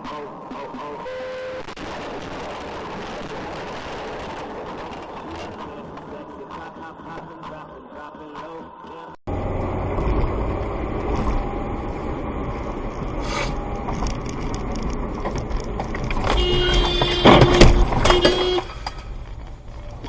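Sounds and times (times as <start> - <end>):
car road and engine rumble: 0.1 - 20.0
loud knocks and clatters: 13.9 - 19.0.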